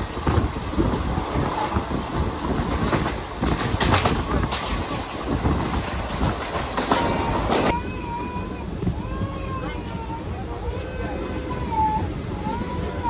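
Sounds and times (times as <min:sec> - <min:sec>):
clickety-clack over rail joints: 0:00.0 - 0:07.8
train wheels rumbling on rails: 0:00.0 - 0:13.0.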